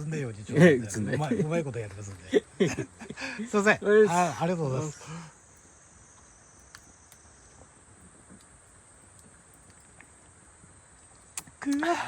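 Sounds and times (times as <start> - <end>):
high-pitched insect chirring: 3.6 - 10.0
faint clicks: 6.1 - 7.6.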